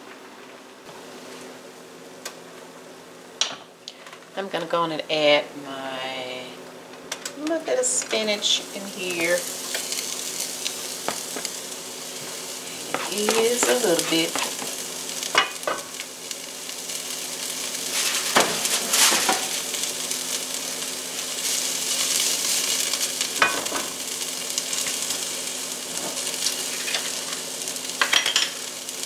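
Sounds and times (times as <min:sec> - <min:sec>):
vegetables sizzling in a skillet: 0:07.2 - 0:29.0.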